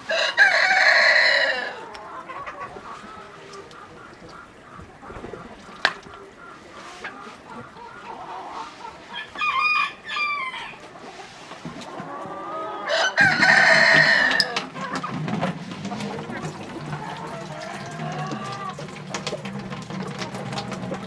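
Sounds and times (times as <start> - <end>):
rooster crowing: 0.0 - 2.7, 7.8 - 10.9, 12.4 - 14.9, 16.8 - 18.9
chickens clucking: 0.0 - 21.0.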